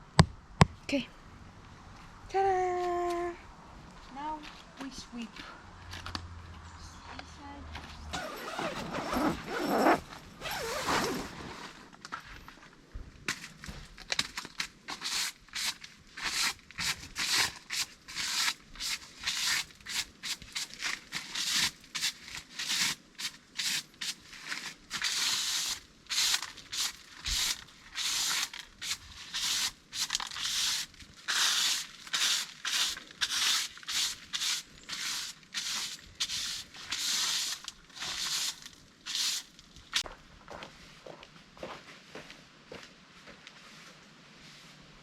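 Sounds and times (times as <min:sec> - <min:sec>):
broom sweeping: 0:08.2 - 0:11.9, 0:14.9 - 0:40.0, 0:43.6 - 0:45.0.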